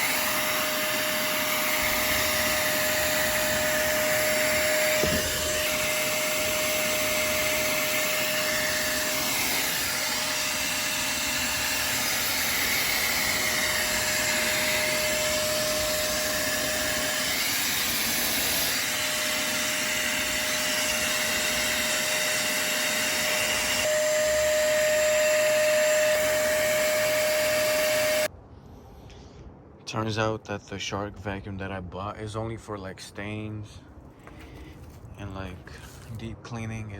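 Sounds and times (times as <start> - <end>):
spot cleaner motor and suction: 0.0 - 28.3.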